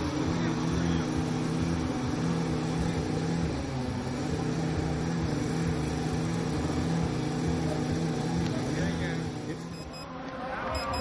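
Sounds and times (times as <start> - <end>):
model engine running: 0.0 - 10.1.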